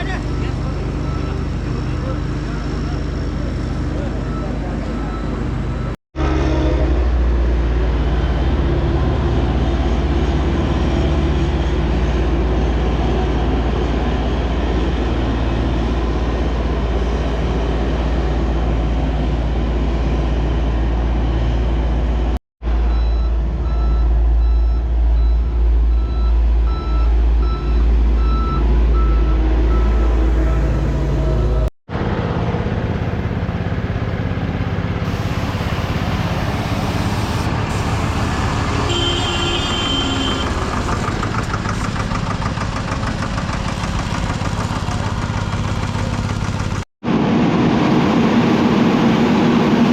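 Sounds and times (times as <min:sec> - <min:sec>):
heavy vehicle engine rumbling: 0:00.0 - 0:49.9
reversing alarm beeping: 0:00.2 - 0:06.0, 0:22.9 - 0:31.7.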